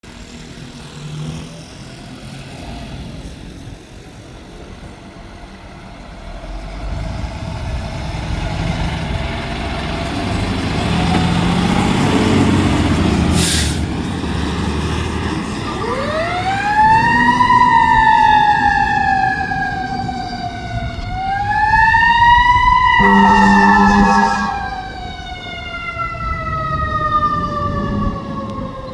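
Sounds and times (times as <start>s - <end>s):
fire engine diesel engine running: 3.0s - 28.9s
air brakes hissing: 13.2s - 14.0s.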